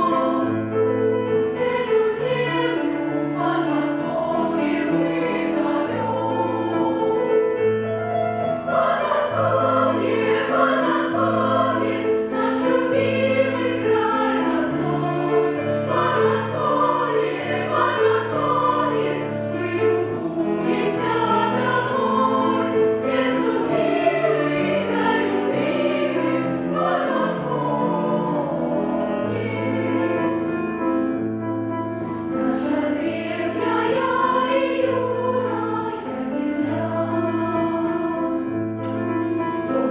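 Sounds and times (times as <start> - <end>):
children's choir singing: 0.0 - 7.6, 8.4 - 30.7, 32.4 - 39.9.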